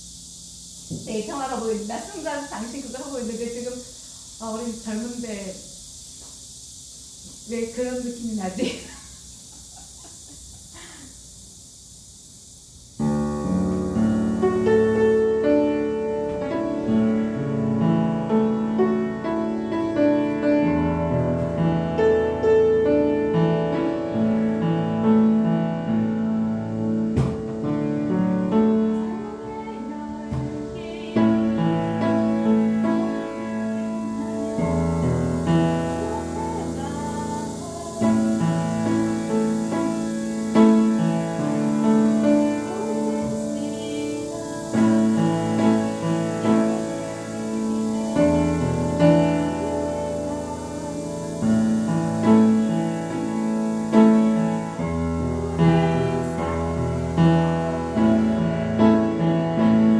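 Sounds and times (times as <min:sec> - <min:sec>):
piano playing slow chords: 0:13.0 - 0:59.9.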